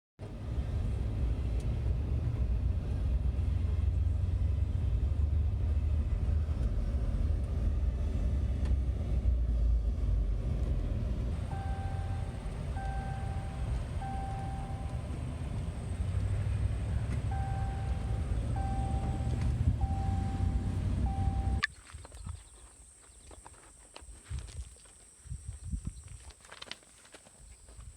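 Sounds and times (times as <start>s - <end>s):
electronic beeps: 11.4s - 15.2s, 17.3s - 21.7s
wind buffeting microphone: 25.3s - 26.2s.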